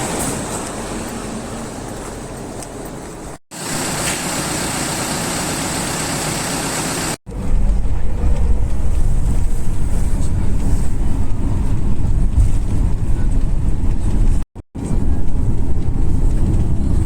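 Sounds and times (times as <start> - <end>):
bus rumbling while driving: 0.0 - 17.0
road and outdoor noise: 0.0 - 17.0.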